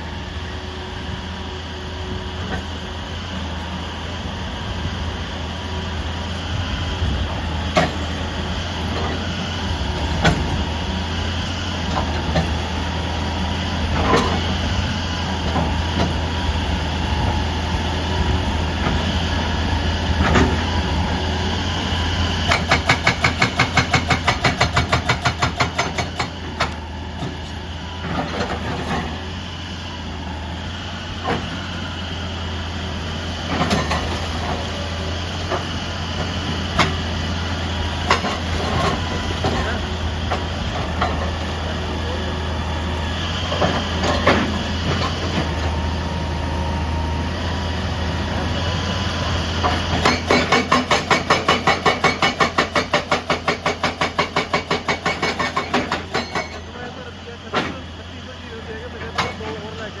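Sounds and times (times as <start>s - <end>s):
excavator diesel engine running: 0.0s - 60.0s
hydraulic breaker hammering rock: 7.7s - 8.2s, 10.1s - 10.6s, 22.3s - 29.2s, 33.5s - 34.7s, 35.4s - 37.1s, 38.0s - 41.7s, 49.6s - 57.9s, 59.0s - 59.8s.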